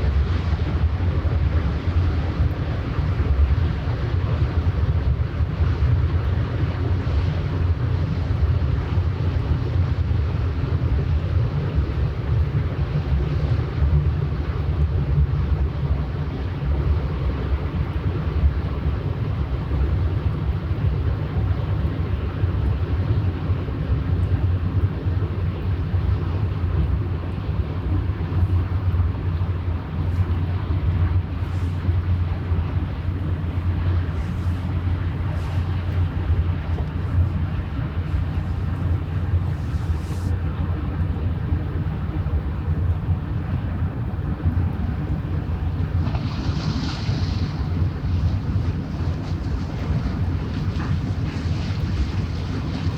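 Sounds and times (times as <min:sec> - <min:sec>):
ship engine drone: 0:00.0 - 0:52.9.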